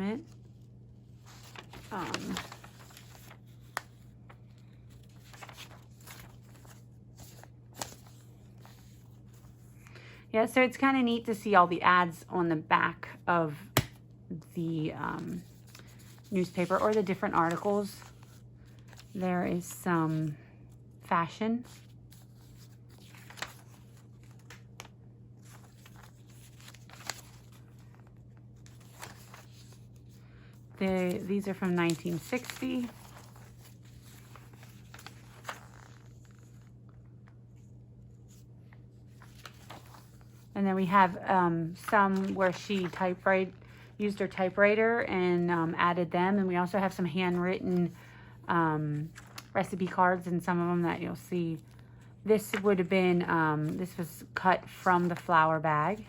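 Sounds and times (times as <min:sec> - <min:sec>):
low steady hum: 0:00.0 - 0:56.0
paper pages rustling: 0:00.3 - 0:09.8, 0:14.7 - 0:20.4, 0:21.6 - 0:44.6, 0:49.0 - 0:50.0, 0:53.6 - 0:56.0.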